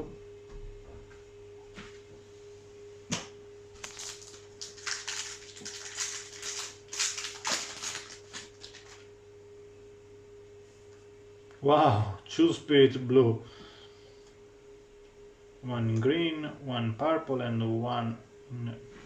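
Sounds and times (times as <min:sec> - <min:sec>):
faint hum: 0:00.0 - 0:19.0
card pack crinkling and clicking: 0:03.8 - 0:09.1.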